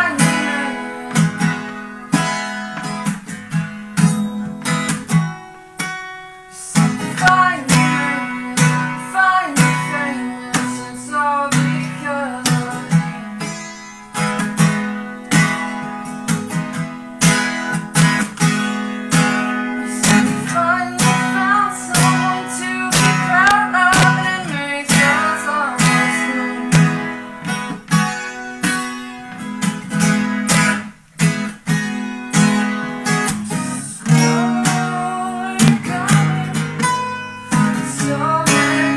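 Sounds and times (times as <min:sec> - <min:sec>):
person singing: 0:00.0 - 0:02.4, 0:06.5 - 0:13.6, 0:19.5 - 0:27.4, 0:32.7 - 0:38.9
acoustic guitar strumming: 0:00.0 - 0:38.9.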